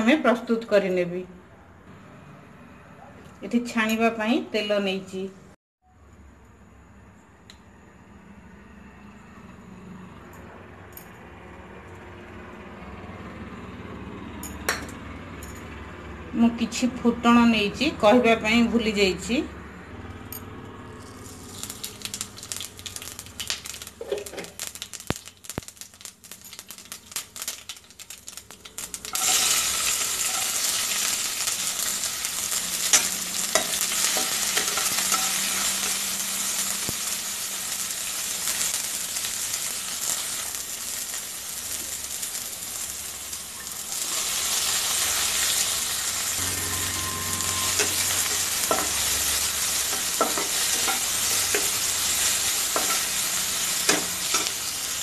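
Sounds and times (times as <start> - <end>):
spices crackling in hot oil: 20.8 - 55.0
onions sizzling in oil: 20.9 - 55.0.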